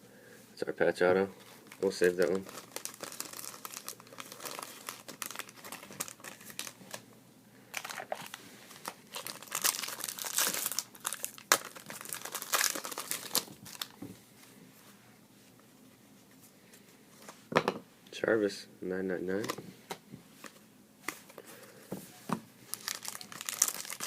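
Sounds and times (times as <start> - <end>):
packaging crinkling and rustling: 1.4 - 7.0, 7.7 - 14.1, 22.7 - 24.0.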